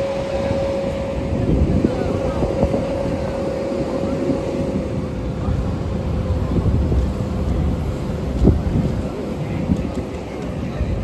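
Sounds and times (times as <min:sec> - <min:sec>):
aircraft engine noise: 0:00.0 - 0:11.0
thin steady whine: 0:00.0 - 0:11.0
wind on microphone: 0:00.0 - 0:11.0.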